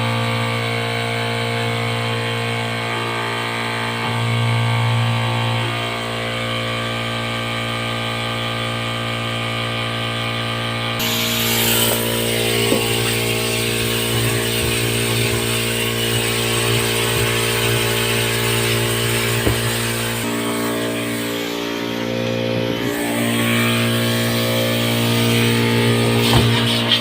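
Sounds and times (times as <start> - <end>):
pressure washer motor humming: 0.0 - 27.0
water jet hissing: 11.0 - 22.1.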